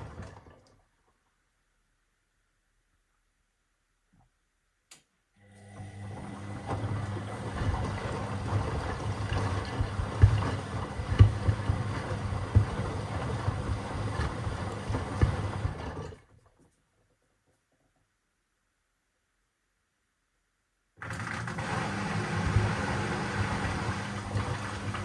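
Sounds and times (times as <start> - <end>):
washing machine motor hum: 0.0 - 0.8, 5.4 - 16.3, 21.0 - 25.0.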